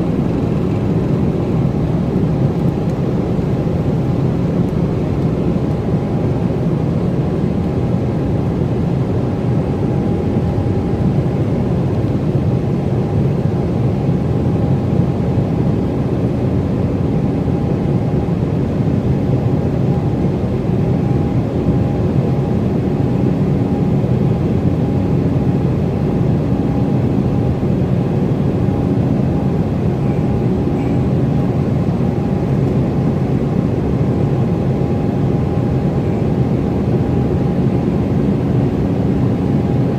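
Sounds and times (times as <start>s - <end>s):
steady hum: 0.0s - 6.9s
jet engines and airflow drone: 0.0s - 39.9s.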